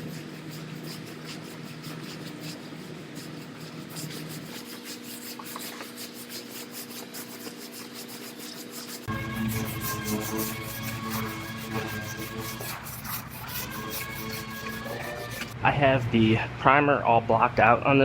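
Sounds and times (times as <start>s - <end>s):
sandpaper scratching strokes: 0.0s - 15.6s
steady low hum: 0.0s - 17.6s.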